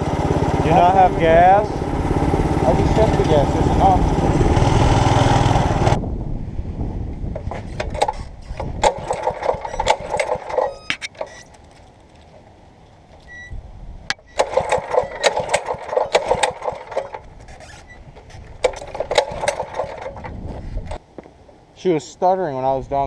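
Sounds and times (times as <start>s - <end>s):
small engine sputtering: 0.0s - 6.0s, 7.4s - 11.9s, 14.1s - 21.0s.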